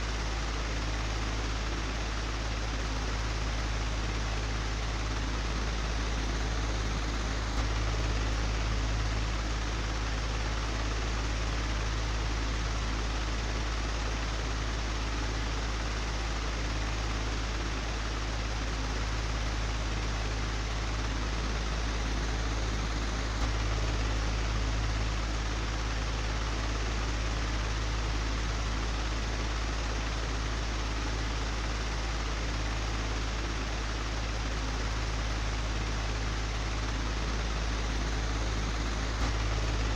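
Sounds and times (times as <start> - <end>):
electric fan humming: 21.3 - 39.9.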